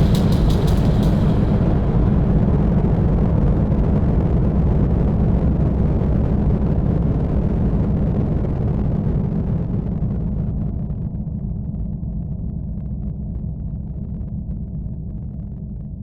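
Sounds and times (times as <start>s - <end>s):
low rumbling synth drone: 0.0s - 4.9s.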